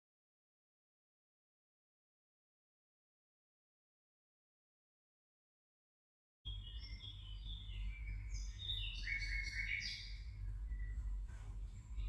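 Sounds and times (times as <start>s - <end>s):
birds chirping: 6.5s - 12.0s
low background rumble: 6.5s - 12.0s.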